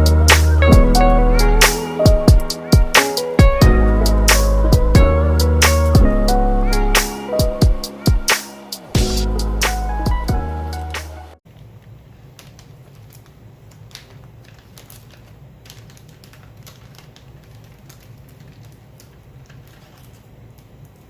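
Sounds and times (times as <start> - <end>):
clicks of small hard objects: 12.3 - 21.0.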